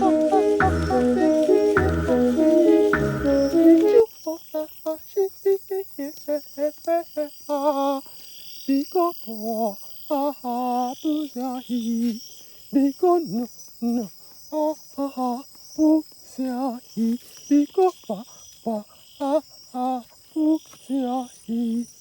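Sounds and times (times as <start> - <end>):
bird cooing: 0.0 - 4.1
insects chirring: 0.0 - 22.0.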